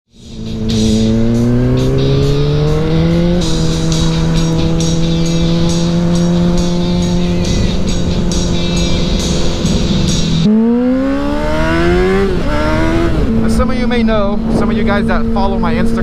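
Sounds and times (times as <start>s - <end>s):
music with a beat: 0.1s - 10.5s
motorcycle engine revving: 0.1s - 16.0s.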